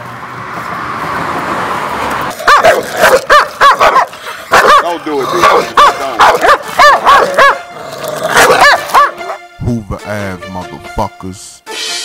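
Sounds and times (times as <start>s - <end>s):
dog barking loudly: 2.3s - 9.5s.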